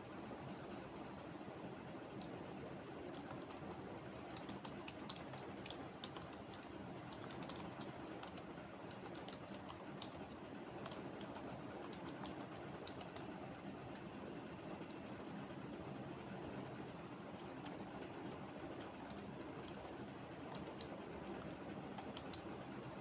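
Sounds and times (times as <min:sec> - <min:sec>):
keyboard typing: 0:03.0 - 0:13.3, 0:17.4 - 0:22.6.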